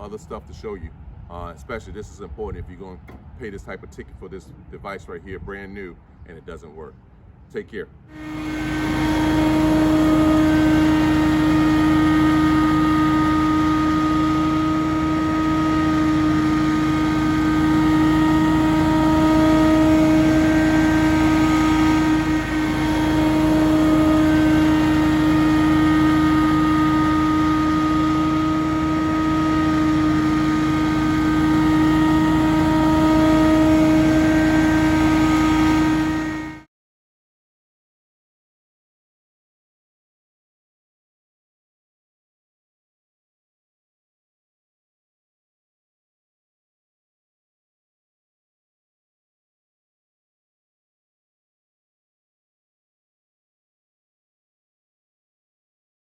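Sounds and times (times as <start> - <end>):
leaf blower engine droning: 8.1 - 36.7.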